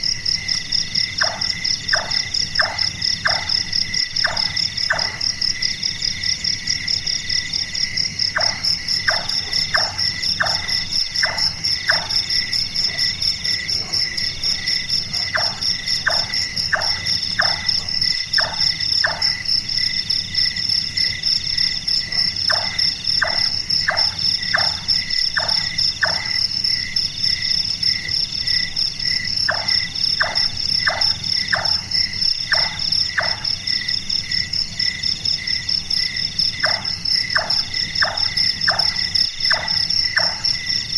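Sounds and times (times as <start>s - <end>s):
crickets chirping: 0.0s - 40.9s
nightjar calling: 8.2s - 19.4s.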